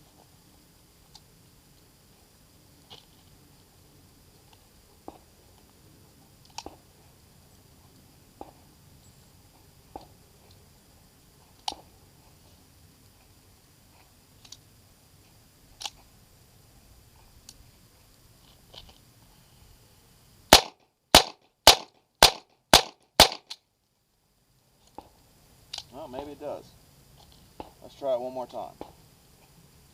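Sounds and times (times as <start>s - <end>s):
pistol shots: 20.5s - 23.6s.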